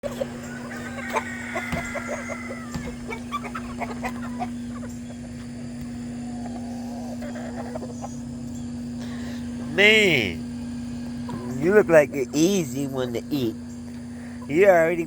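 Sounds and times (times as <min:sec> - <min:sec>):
rooster crowing: 0:00.0 - 0:04.9
chickens clucking: 0:00.0 - 0:15.0
steady low hum: 0:00.0 - 0:15.0.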